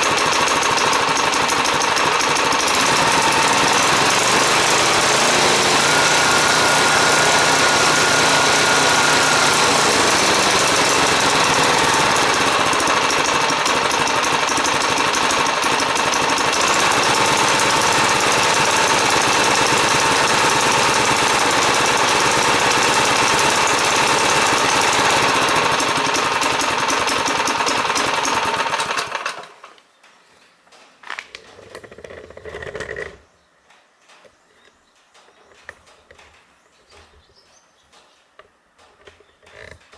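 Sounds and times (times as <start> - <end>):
brush cutter engine running: 0.0 - 29.7.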